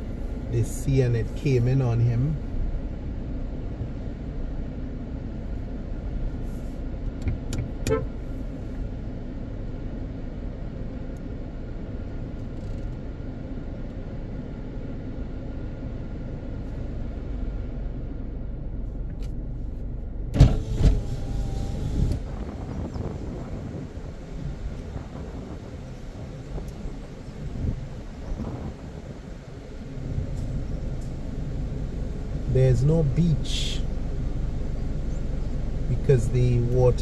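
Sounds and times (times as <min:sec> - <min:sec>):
road and engine noise in car: 0:00.0 - 0:37.0.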